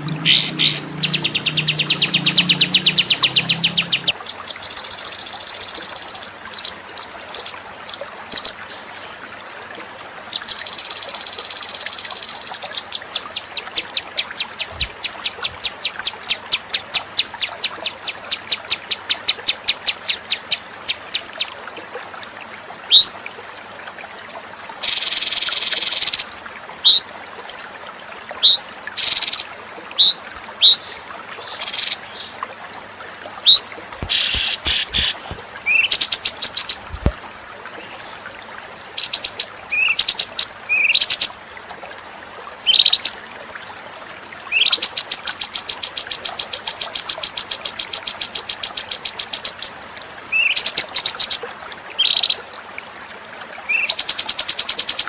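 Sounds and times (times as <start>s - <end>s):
songbird calls and song: 0.0s - 9.2s, 28.4s - 36.8s, 39.0s - 41.3s, 42.6s - 43.2s, 50.3s - 51.4s, 52.0s - 52.4s, 53.7s - 55.0s.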